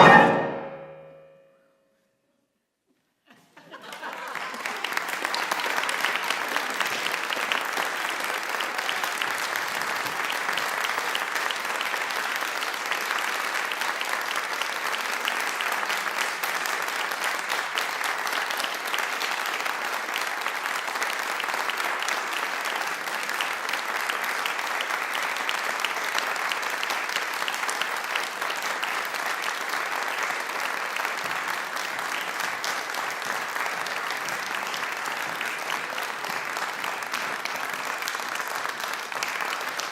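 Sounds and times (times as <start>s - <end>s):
audience applauding: 3.7s - 39.9s.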